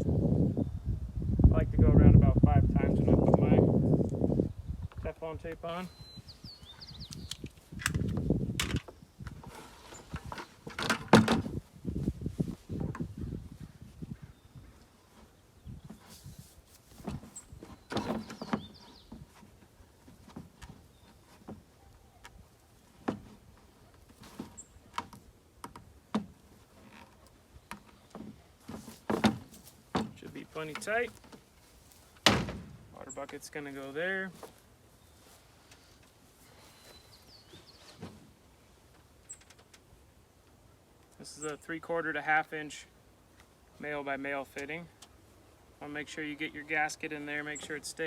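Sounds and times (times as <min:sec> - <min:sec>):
plastic parts knocking and clicking: 0:07.3 - 0:08.9.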